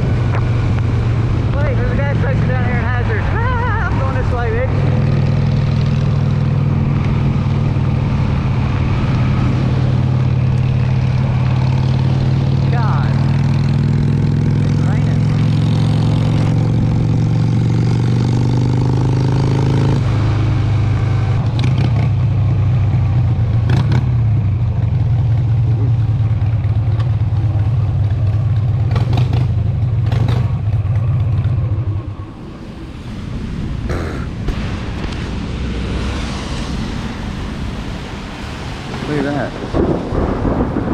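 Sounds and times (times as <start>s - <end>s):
motorcycle engine running: 0.0s - 32.6s.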